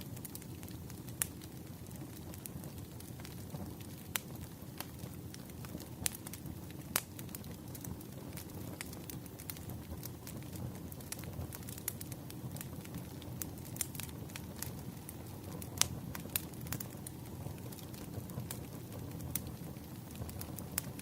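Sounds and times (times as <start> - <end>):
low rumble of burning logs: 0.0 - 21.0
wood fire crackling and popping: 0.0 - 21.0.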